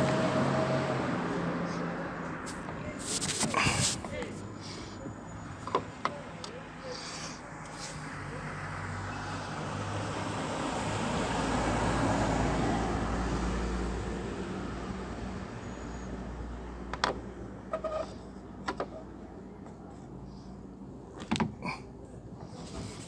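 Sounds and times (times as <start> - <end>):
vehicle passing by: 0.0 - 3.8, 7.3 - 16.9.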